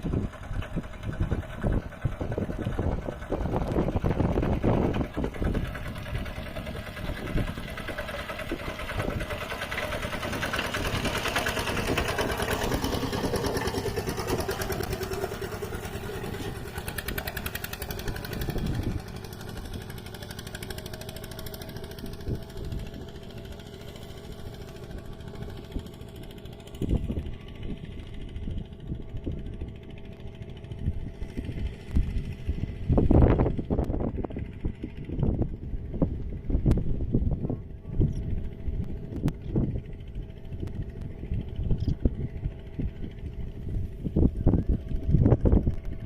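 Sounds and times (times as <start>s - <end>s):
diesel tractor engine chugging: 0.0s - 46.0s.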